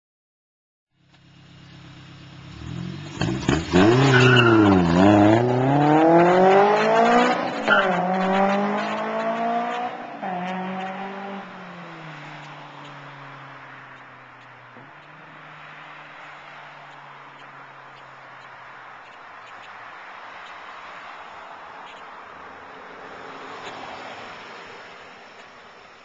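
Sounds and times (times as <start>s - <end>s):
car engine accelerating hard: 2.2s - 14.0s.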